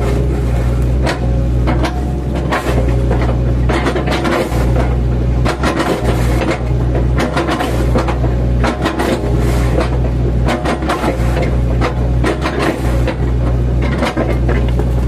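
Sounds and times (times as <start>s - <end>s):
excavator diesel engine: 0.0s - 15.0s
wood knocking and cracking: 14.0s - 15.0s.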